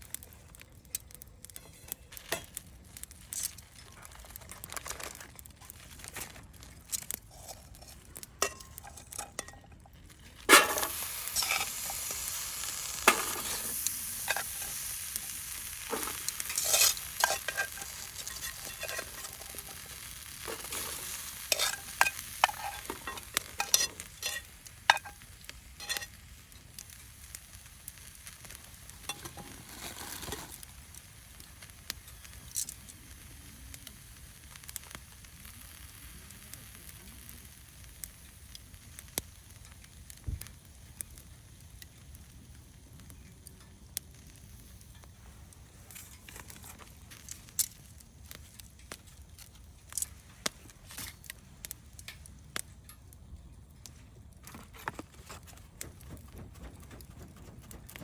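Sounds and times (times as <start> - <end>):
food sizzling over a campfire: 0.0 - 58.0
utensil stirring and scraping: 10.5 - 12.3, 13.0 - 14.9, 15.9 - 25.2
scattered pops: 54.5 - 58.0.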